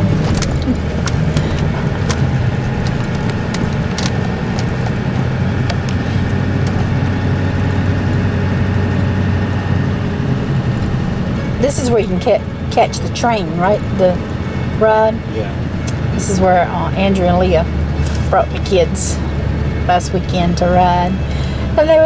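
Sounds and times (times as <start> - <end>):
light clicks and rattles: 0.0 - 22.0
truck engine and road noise: 0.0 - 22.0.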